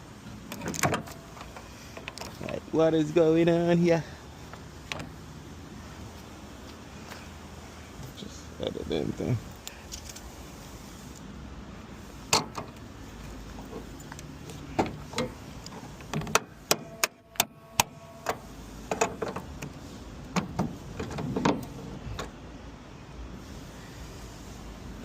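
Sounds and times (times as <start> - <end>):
clicks and knocks handling car parts: 0.2 - 2.7, 4.4 - 5.2, 9.5 - 10.4, 12.2 - 22.4.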